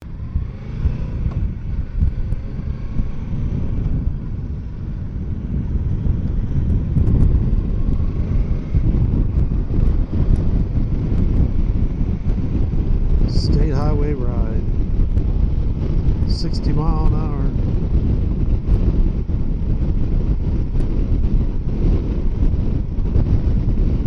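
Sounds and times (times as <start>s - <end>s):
motorcycle engine: 0.0s - 24.0s
wind buffeting microphone: 0.0s - 24.0s.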